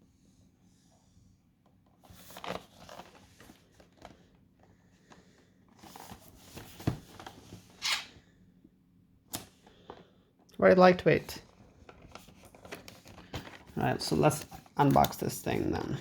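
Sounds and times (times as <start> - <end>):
packaging rustling and scraping: 1.9 - 8.2, 11.4 - 15.8.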